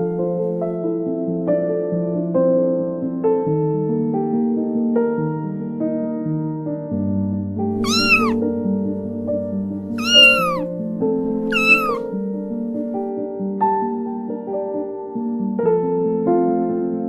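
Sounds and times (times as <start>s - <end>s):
kitten meowing: 7.8s - 8.4s, 10.0s - 10.7s, 11.3s - 12.1s.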